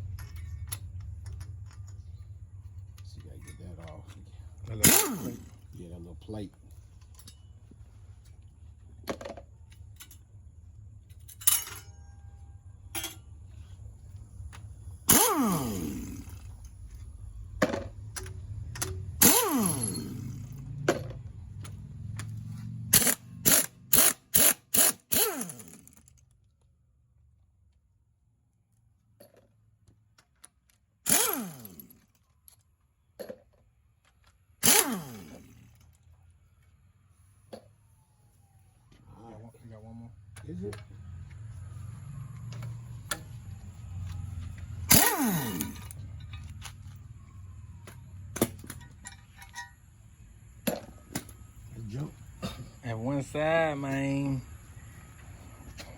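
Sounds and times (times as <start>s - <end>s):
power tool zipping bolts: 4.7s - 5.7s, 15.0s - 16.7s, 18.1s - 21.1s, 21.7s - 26.2s, 31.0s - 32.2s, 34.6s - 35.9s, 44.8s - 46.7s, 48.3s - 49.7s
low hum: 9.6s - 23.8s.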